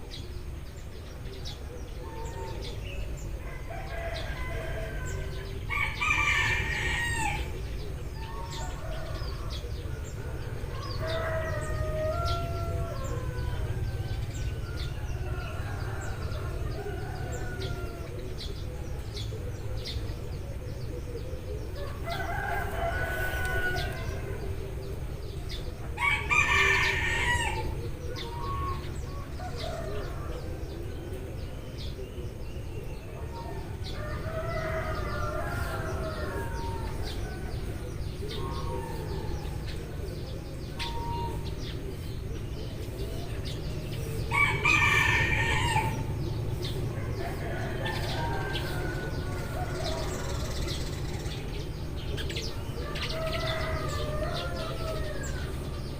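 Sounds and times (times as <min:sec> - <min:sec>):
sparrows chirping: 0:00.0 - 0:55.9
rooster crowing: 0:02.0 - 0:07.6, 0:08.2 - 0:18.2, 0:21.8 - 0:24.6, 0:26.0 - 0:30.8, 0:33.3 - 0:39.6, 0:44.3 - 0:51.3, 0:52.2 - 0:55.9.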